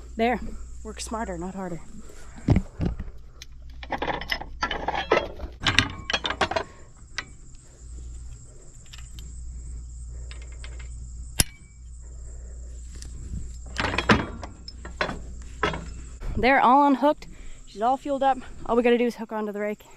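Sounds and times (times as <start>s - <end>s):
low steady rumble: 0.0s - 19.2s
insects chirring: 0.0s - 19.9s
handling knocks and clatter: 2.3s - 7.6s, 12.9s - 16.6s
sharp metallic clink: 11.4s - 11.8s.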